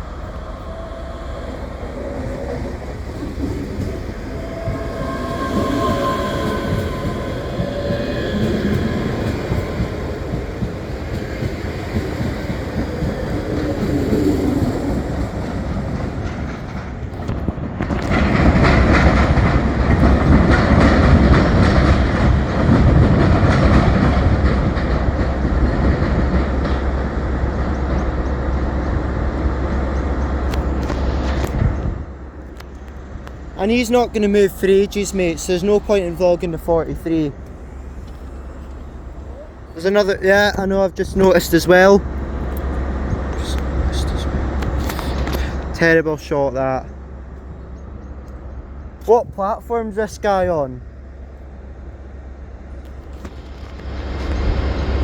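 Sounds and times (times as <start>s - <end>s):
train wheels clicking over rail joints: 0.0s - 29.0s.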